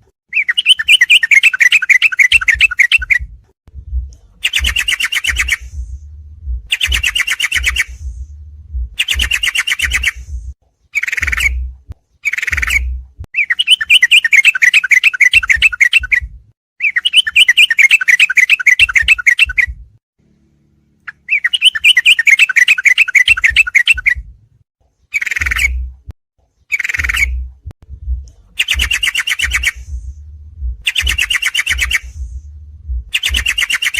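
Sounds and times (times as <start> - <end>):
low rumble: 3.2 - 9.4, 10.1 - 10.6, 12.8 - 13.3, 27.2 - 29.0, 29.8 - 31.3, 32.0 - 33.5
bulbul chattering trills: 4.4 - 5.8, 6.7 - 8.0, 9.0 - 10.3, 11.0 - 11.6, 28.6 - 30.0, 30.8 - 32.2, 33.1 - 33.9.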